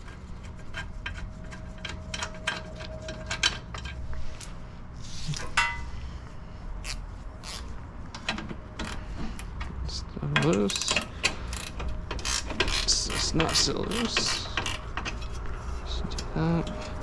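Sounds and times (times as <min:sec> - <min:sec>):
metal tools clinking: 0:05.2 - 0:06.0, 0:10.2 - 0:15.3
ratcheting wrench clicking: 0:06.8 - 0:09.0, 0:10.4 - 0:15.2.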